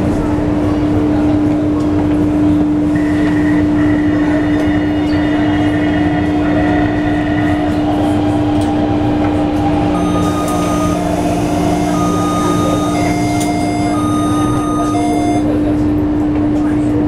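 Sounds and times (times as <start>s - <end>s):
constant hum: 0.0s - 17.0s
train rumble: 0.0s - 17.0s
thin high whine: 10.0s - 15.6s.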